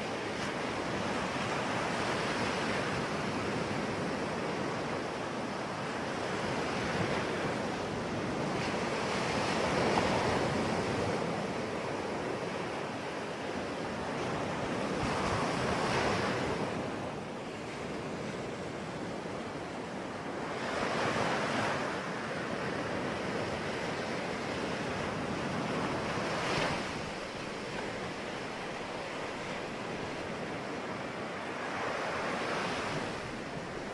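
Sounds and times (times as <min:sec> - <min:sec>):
ocean waves breaking on shore: 0:00.0 - 0:33.9
wind: 0:00.0 - 0:33.9.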